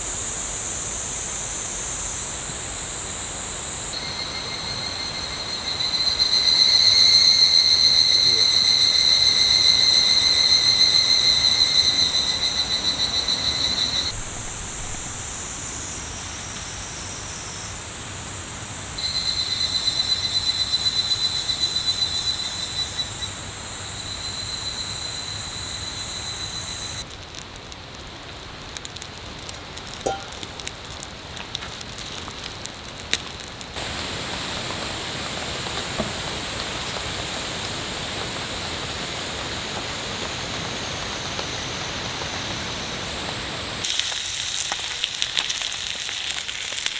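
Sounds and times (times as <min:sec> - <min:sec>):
heavy rain hissing: 0:00.0 - 0:19.0, 0:27.0 - 0:46.9
sharp crackling clicks: 0:27.0 - 0:33.8.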